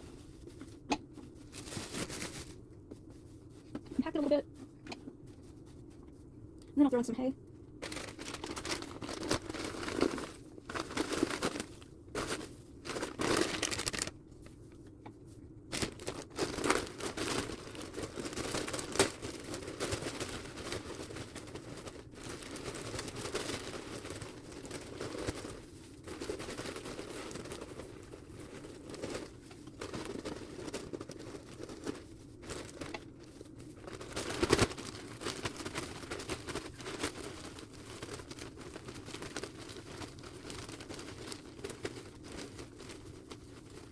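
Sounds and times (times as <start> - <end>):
hay rustling and crackling: 7.8 - 14.1.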